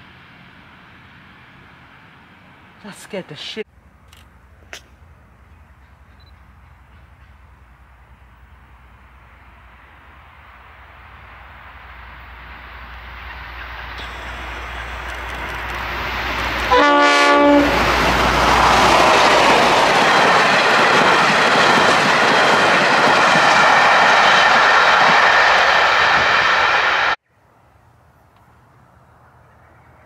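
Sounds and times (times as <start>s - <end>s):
engine and wheels on rail: 0.0s - 30.0s
locomotive rumbling: 0.0s - 30.0s
train horn blast: 16.6s - 18.0s.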